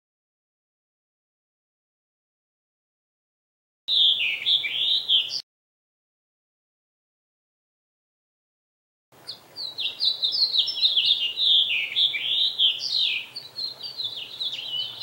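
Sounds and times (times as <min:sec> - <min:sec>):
small birds chirping: 0:03.9 - 0:05.4, 0:09.2 - 0:15.0.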